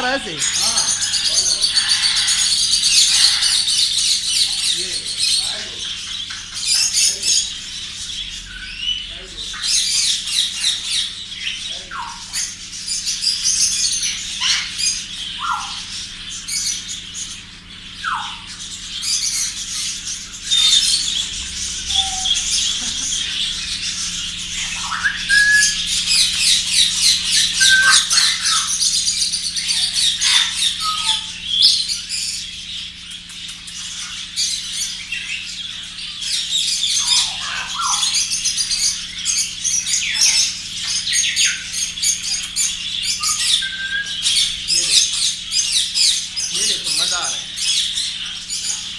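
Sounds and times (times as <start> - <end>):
faint steady hum: 0.0 - 48.9
parrots chattering: 0.0 - 48.9
bird whistles and squawks: 18.0 - 32.5, 33.5 - 48.9.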